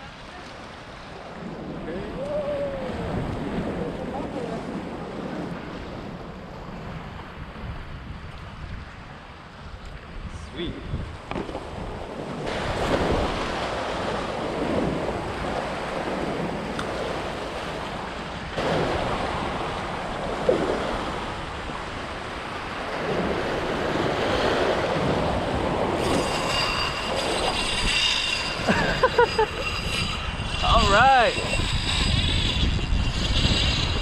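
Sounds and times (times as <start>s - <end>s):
wind buffeting microphone: 0.0s - 34.0s
waves washing against rocks: 10.5s - 29.2s.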